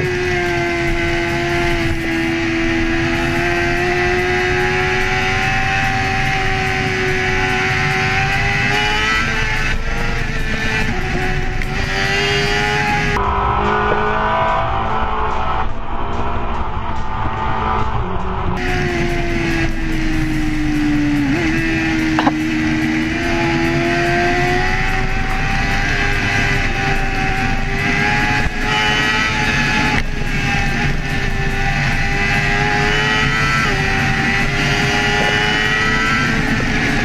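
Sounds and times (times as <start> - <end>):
motorcycle engine revving high: 0.0 - 16.4, 17.1 - 37.0
steady rushing noise: 0.0 - 37.0.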